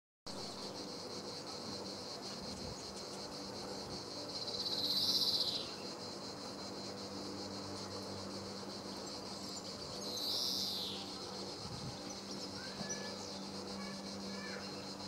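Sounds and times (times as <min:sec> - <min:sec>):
high-pitched insect chorus: 0:00.3 - 0:15.0
loud buzzy insect sound: 0:00.3 - 0:15.0.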